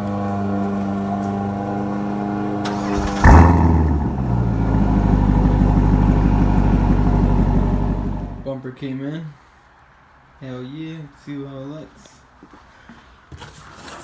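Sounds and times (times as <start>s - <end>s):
car engine starting and idling: 0.2s - 8.5s.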